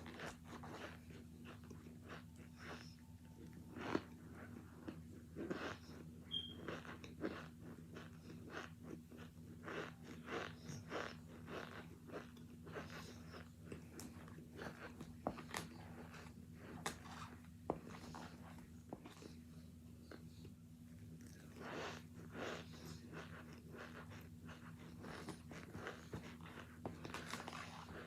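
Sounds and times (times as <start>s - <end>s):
crunching and chewing chalky chunks: 0.0s - 28.0s.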